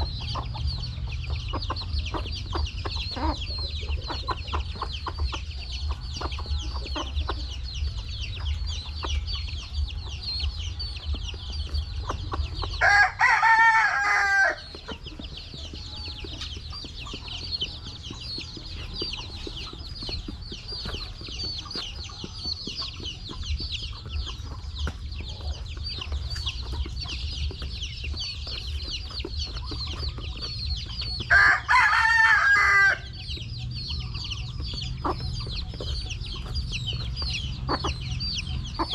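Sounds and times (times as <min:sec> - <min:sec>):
chickens peeping and clucking: 0:00.0 - 0:38.9
rooster crowing: 0:12.8 - 0:14.6, 0:31.3 - 0:33.1.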